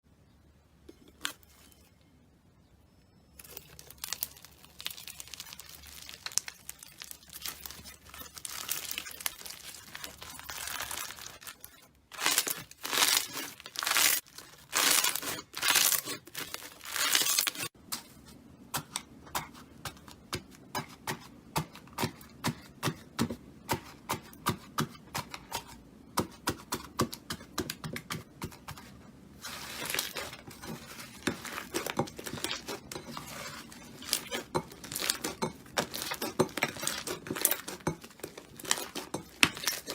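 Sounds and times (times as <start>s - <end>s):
slime squeezed and stretched: 3.7s - 17.7s.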